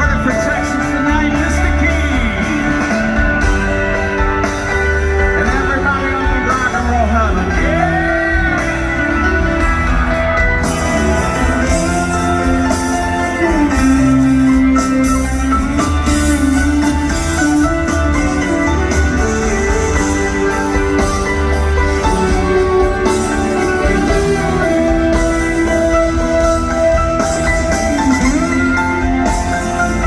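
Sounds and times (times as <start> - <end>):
live rock band playing: 0.0 - 30.0
electric guitar bending notes: 7.2 - 30.0.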